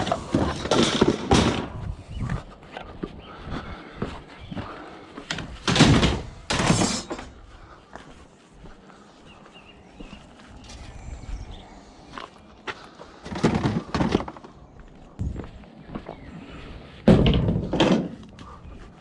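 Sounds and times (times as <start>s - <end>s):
scrap metal thunks and clatter: 0.0s - 1.8s, 5.3s - 7.4s, 13.2s - 14.5s, 17.0s - 18.3s.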